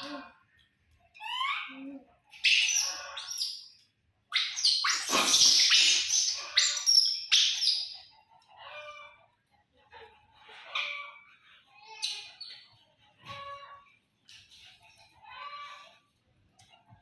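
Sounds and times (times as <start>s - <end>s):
baby monkeys squealing: 2.4s - 3.7s, 4.3s - 8.0s.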